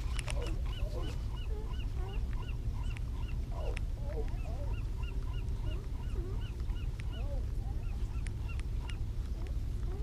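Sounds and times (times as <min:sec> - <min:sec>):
bird rise-and-fall calls: 0:00.0 - 0:10.0
lower wavering bird calls: 0:00.0 - 0:10.0.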